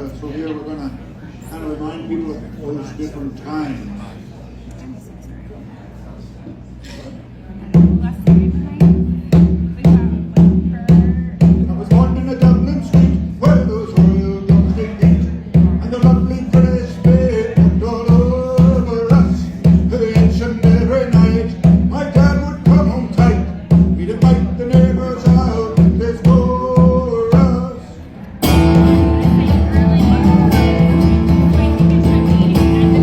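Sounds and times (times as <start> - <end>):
steady drumbeat: 7.6 - 27.8, 28.4 - 33.0
live band playing: 28.4 - 33.0.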